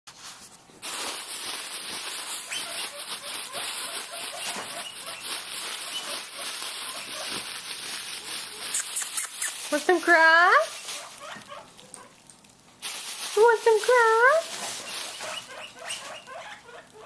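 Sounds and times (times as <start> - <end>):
guinea pig squeaking: 2.2 - 12.2, 13.7 - 17.0.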